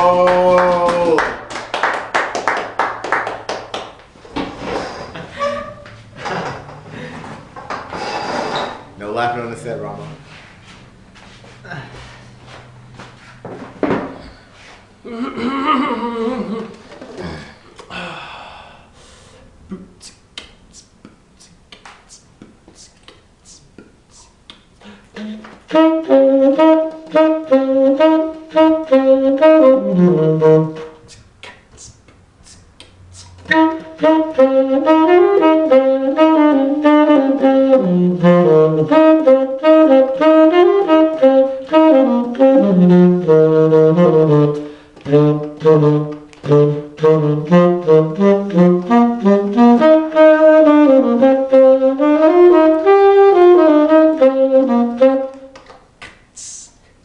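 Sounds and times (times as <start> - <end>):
solo instrument melody: 25.2 - 31.0, 33.5 - 55.5.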